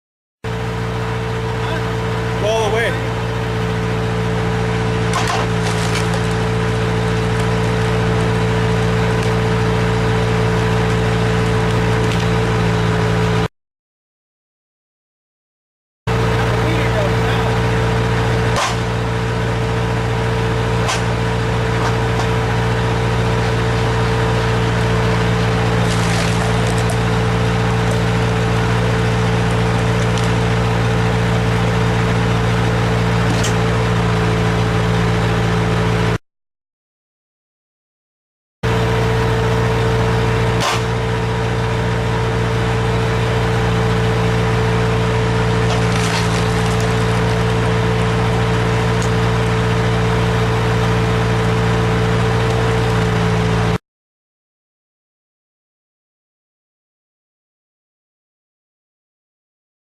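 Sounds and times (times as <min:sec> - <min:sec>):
loader engine under load: 0:00.5 - 0:13.5, 0:16.1 - 0:36.2, 0:38.6 - 0:53.8
wood cracking: 0:05.0 - 0:08.0, 0:18.5 - 0:19.0, 0:25.4 - 0:30.7, 0:45.3 - 0:48.0
sharp crack: 0:18.5 - 0:19.0, 0:20.8 - 0:21.2, 0:40.6 - 0:41.0.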